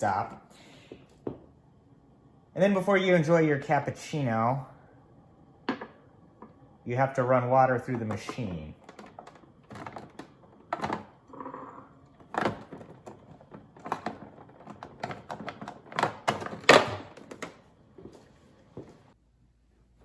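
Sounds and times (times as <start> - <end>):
plastic espresso machine clicks and knocks: 7.9 - 11.1, 12.2 - 17.6.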